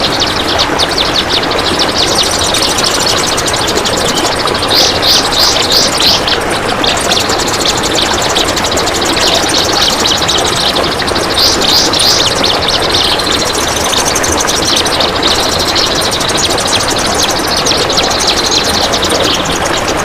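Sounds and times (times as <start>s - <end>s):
bird singing rapid rasping trill: 0.0s - 20.0s.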